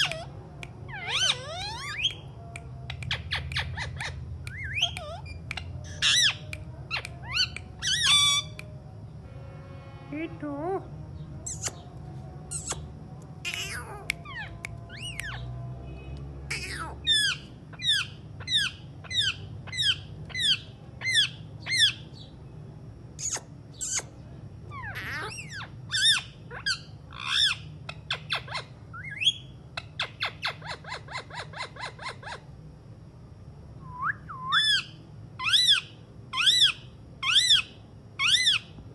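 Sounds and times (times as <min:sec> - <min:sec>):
parakeet shrill calls: 0:00.9 - 0:02.2, 0:03.1 - 0:08.6, 0:13.5 - 0:15.5, 0:16.5 - 0:22.3, 0:24.7 - 0:32.4, 0:34.3 - 0:38.8.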